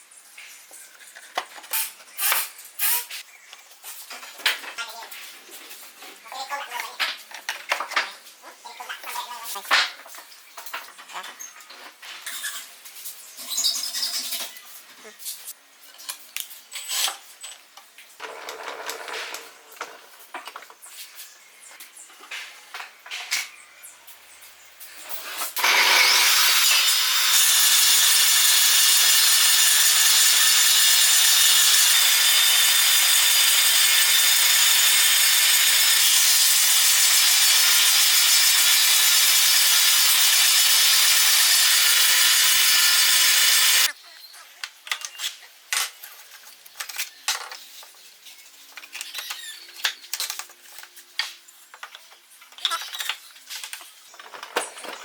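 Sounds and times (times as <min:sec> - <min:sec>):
table saw cutting wood: 0:25.4 - 0:43.9.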